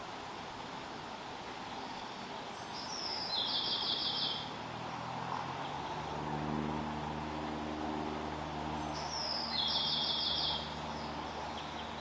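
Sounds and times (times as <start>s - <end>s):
steady outdoor hiss: 0.0s - 12.0s
small bird trilling call: 2.9s - 4.4s, 8.8s - 10.7s
low multi-tone hum: 3.6s - 12.0s.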